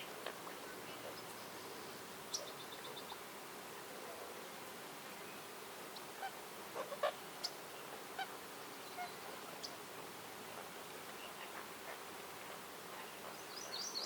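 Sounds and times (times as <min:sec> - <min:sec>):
steady background hiss: 0:00.0 - 0:14.0
wild birds calling: 0:05.3 - 0:09.9.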